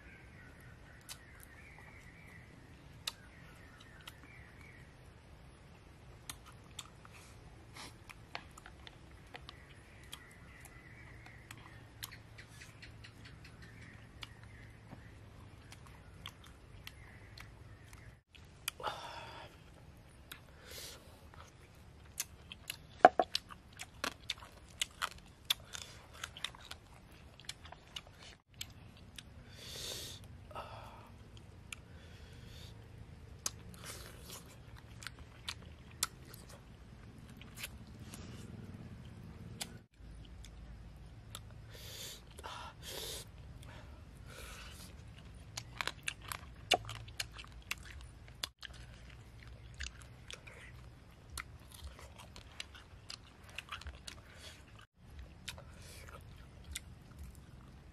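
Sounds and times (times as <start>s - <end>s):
person chewing with crunches: 6.2s - 12.2s, 14.2s - 18.8s, 20.2s - 29.4s, 31.3s - 38.8s, 43.3s - 57.9s.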